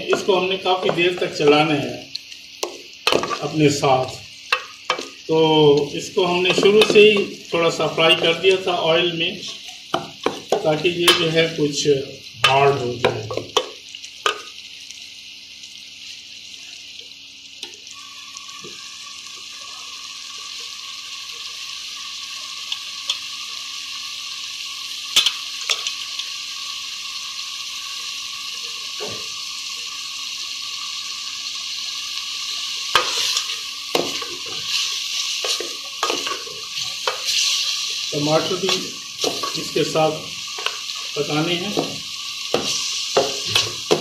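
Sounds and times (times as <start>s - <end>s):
food sizzling in oil: 0.0s - 44.0s
wooden spoon scraping a pot: 33.0s - 37.8s.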